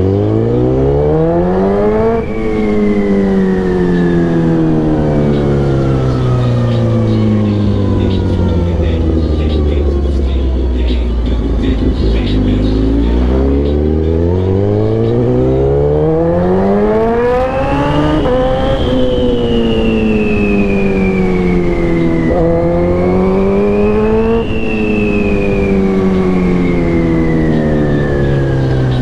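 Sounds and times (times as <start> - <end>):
motorcycle engine accelerating: 0.0 - 29.0
wind rush: 1.4 - 10.1, 14.7 - 29.0.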